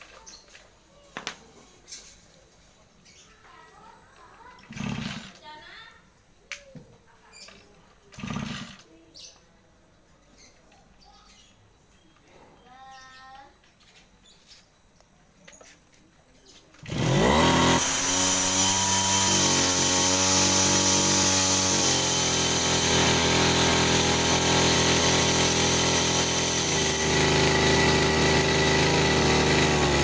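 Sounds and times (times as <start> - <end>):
brush cutter engine running: 4.6 - 5.4, 8.1 - 8.9, 16.8 - 30.0.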